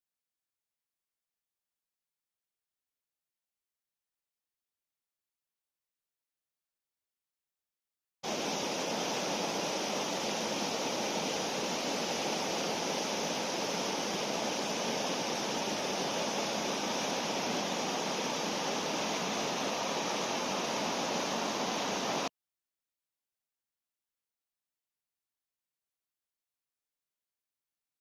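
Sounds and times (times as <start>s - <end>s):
river water rushing: 8.3s - 22.3s.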